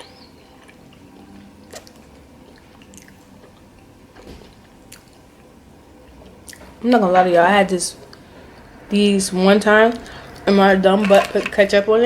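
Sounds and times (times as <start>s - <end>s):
person chewing: 0.0s - 3.9s, 4.5s - 6.7s
wet mouth clicks: 1.6s - 3.6s, 4.9s - 5.2s.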